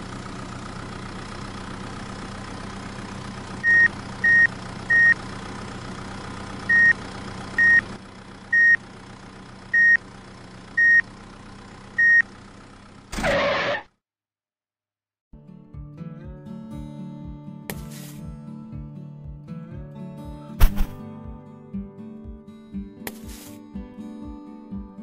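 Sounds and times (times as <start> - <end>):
tractor engine running: 0.0 - 13.8
reversing alarm beeps: 3.6 - 5.2, 6.7 - 7.0, 7.6 - 7.8, 8.6 - 8.8, 9.8 - 10.0, 10.8 - 11.0, 12.0 - 12.2.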